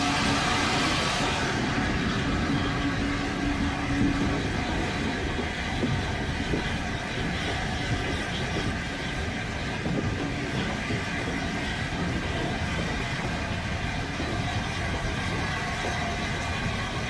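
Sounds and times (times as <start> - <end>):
train carriage rumbling: 0.0 - 17.0
wheels clicking on rails: 0.0 - 17.0.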